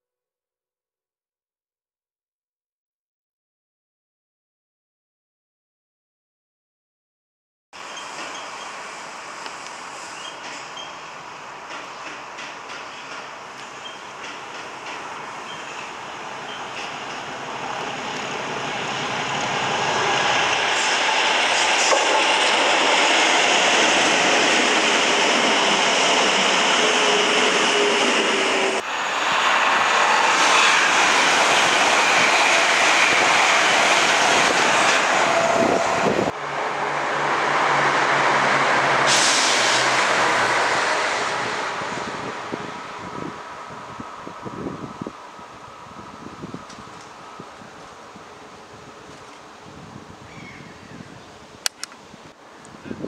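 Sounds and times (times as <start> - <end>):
train wheels rushing on rails: 7.8 - 50.2.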